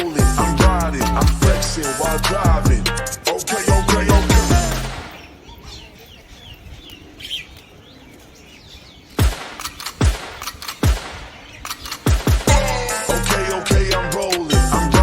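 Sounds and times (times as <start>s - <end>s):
sharp bass-heavy hits: 0.2s - 5.1s, 12.1s - 15.0s
small birds chirping: 3.1s - 13.1s.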